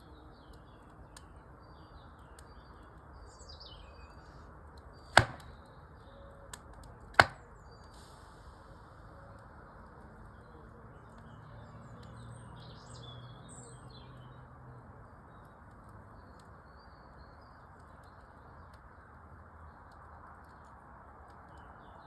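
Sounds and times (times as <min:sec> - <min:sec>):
small birds chirping: 0:00.0 - 0:06.4, 0:09.8 - 0:19.1.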